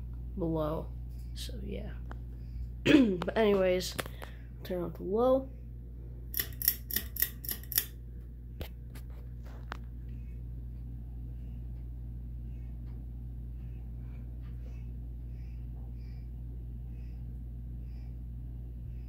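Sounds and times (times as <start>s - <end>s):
ceiling fan humming: 0.0s - 19.0s
pull-chain switch click: 6.4s - 7.9s.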